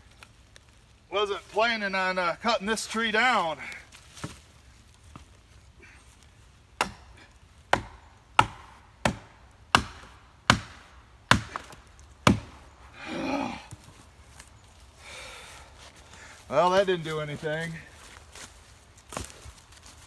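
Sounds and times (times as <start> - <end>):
person grunting: 13.0 - 13.7.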